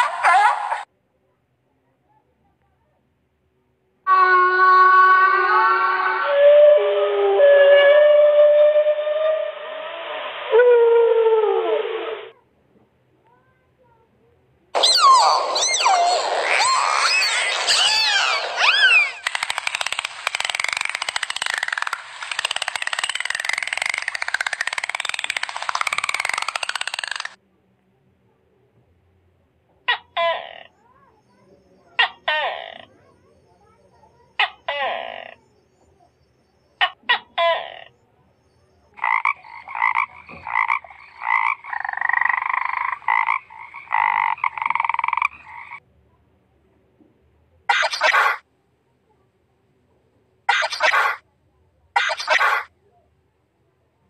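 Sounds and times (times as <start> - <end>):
dolphin whistles: 4.1 - 12.3, 14.8 - 19.3
frog croaking: 14.8 - 27.4, 38.9 - 45.8
dolphin clicks: 16.6 - 27.4.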